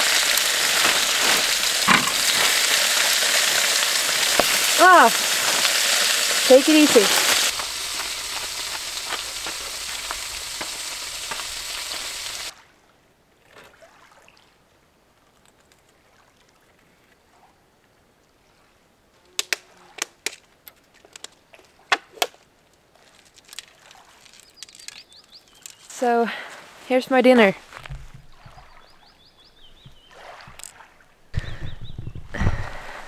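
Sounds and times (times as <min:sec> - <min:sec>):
food sizzling on a stove: 0:00.0 - 0:12.5.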